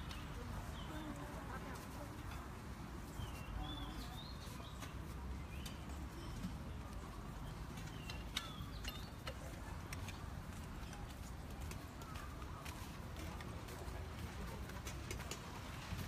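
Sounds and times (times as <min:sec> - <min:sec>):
birds chirping: 0:03.0 - 0:10.2.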